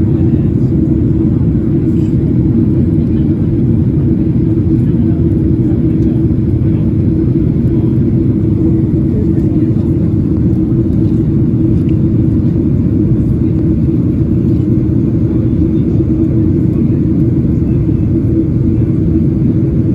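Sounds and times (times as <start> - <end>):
airliner engines and airflow rumble: 0.0 - 19.9
constant hum: 0.0 - 19.9.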